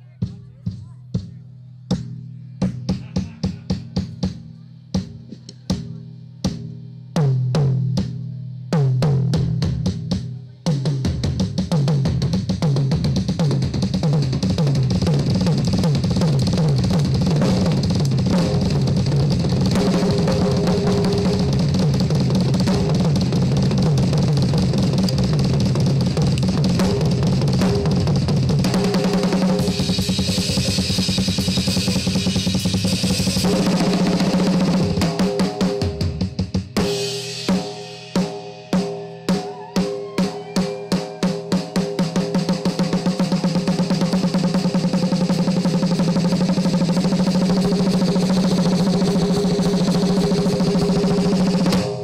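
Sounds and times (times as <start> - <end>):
bass drum and snare strokes: 0.3 - 52.0
live rock band playing: 29.6 - 42.4
cymbals crashing: 36.8 - 42.1.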